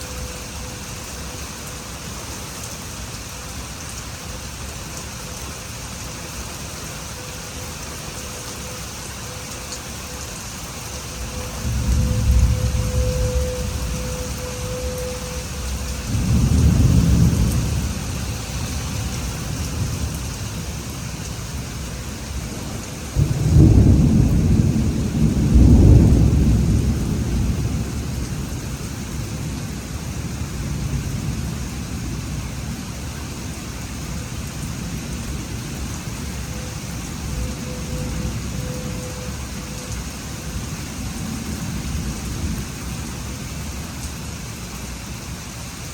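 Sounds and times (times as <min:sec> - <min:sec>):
steady rain: 0:00.0 - 0:45.9
rolling thunder: 0:11.2 - 0:20.9, 0:22.3 - 0:32.8.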